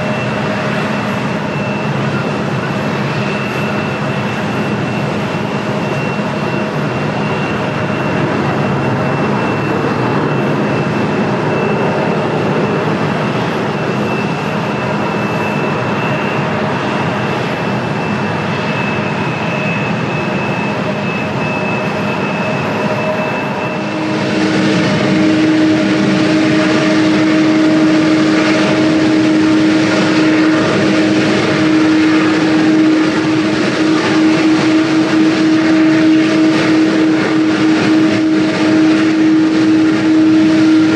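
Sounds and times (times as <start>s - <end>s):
jet engines whining: 0.0s - 40.9s
steady hum: 0.0s - 40.9s.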